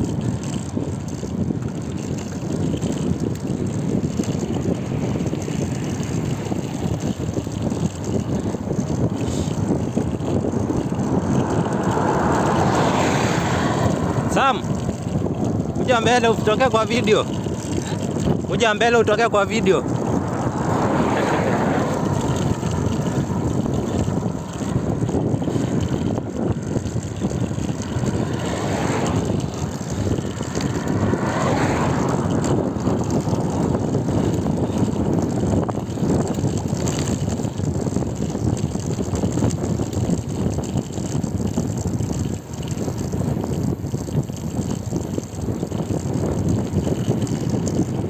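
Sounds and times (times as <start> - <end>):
road noise from bicycle: 0.0 - 48.0
wind buffeting microphone: 0.0 - 48.0
wind rushing: 2.4 - 48.0.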